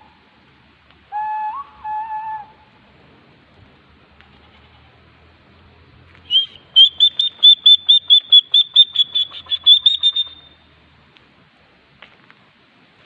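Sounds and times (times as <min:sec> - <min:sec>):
bird calling short high notes: 0:06.3 - 0:10.6.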